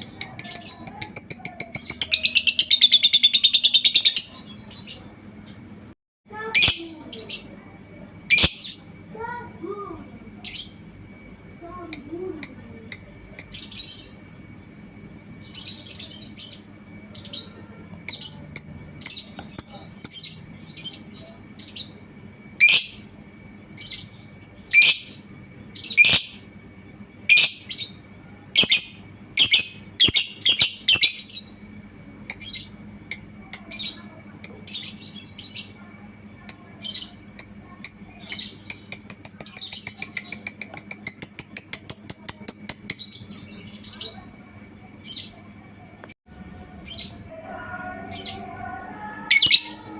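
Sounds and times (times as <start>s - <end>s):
lovebird chirping and chattering: 0.0s - 5.1s, 8.3s - 8.9s, 11.9s - 14.8s, 18.1s - 22.0s, 22.6s - 23.0s, 23.8s - 26.4s, 27.3s - 31.6s, 32.3s - 35.8s, 36.5s - 44.2s.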